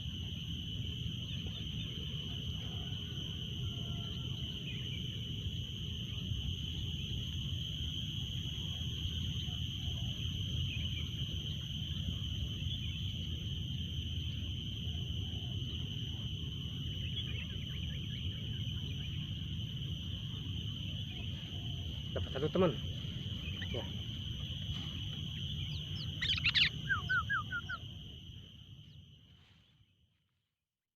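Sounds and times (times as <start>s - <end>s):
faint bird chirps: 25.0s - 27.9s.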